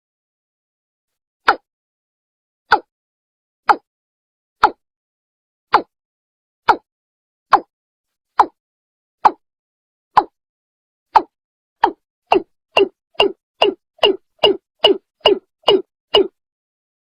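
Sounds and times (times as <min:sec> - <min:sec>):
bird calling hollow notes: 0:11.2 - 0:16.4.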